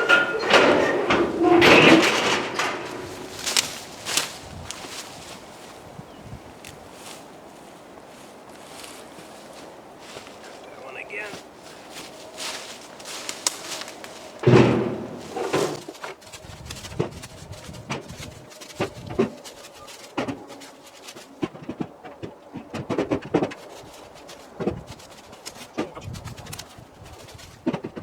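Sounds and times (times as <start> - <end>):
firewood knocks and thuds: 0.0 - 5.8, 11.9 - 28.0.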